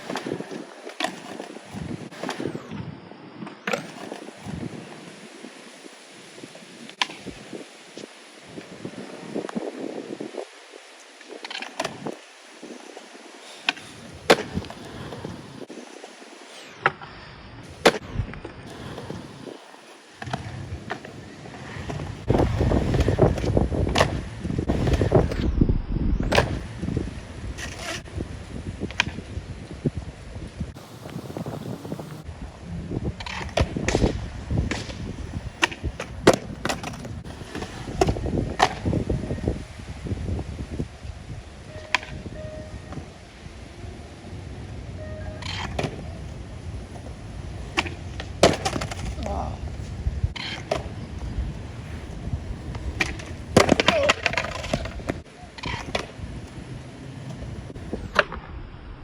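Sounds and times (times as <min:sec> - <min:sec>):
skateboard clacking on ground: 0:00.0 - 0:02.7, 0:03.4 - 0:05.4, 0:06.8 - 0:09.7, 0:11.0 - 0:16.4, 0:17.7 - 0:25.4, 0:33.2 - 0:39.7, 0:41.7 - 0:43.2, 0:45.1 - 0:58.4
skateboard rolling on wet concrete: 0:00.0 - 0:25.5, 0:26.2 - 0:58.9.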